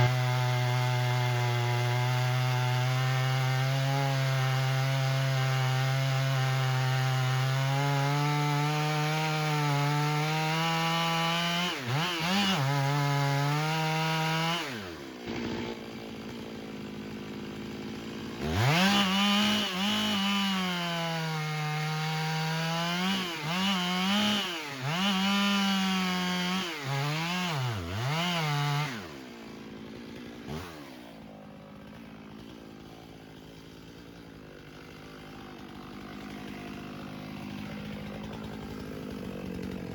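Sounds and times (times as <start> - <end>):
chainsaw engine revving and idling: 0.0 - 39.9.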